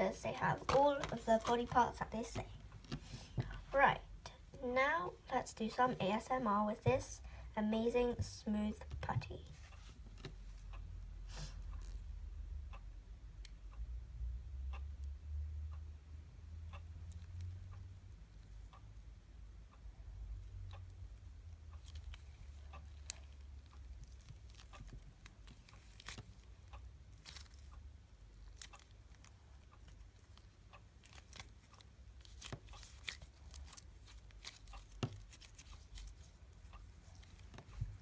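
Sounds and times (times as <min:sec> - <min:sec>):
faint crackles and clicks: 0:21.6 - 0:38.0.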